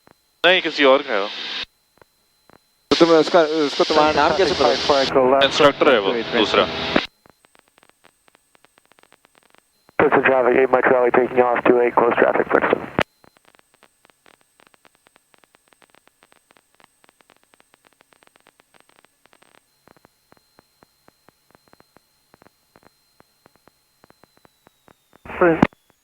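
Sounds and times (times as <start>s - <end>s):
crackling static: 0.0s - 26.0s
low steady hum: 3.8s - 7.0s, 10.0s - 13.0s.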